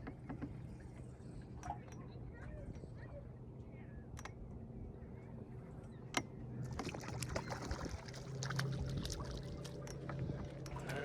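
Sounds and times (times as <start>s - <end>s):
water splashing along hull: 6.2s - 11.0s
boat motor running: 6.9s - 11.0s.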